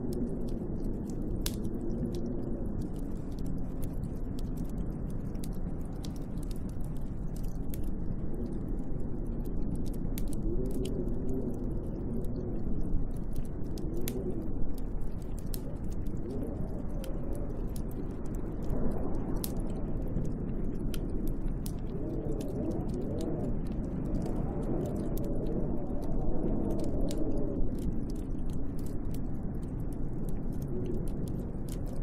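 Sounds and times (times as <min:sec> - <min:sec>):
howling wind gusts: 0:00.0 - 0:32.0
sharp crackles and ticks: 0:00.0 - 0:32.0.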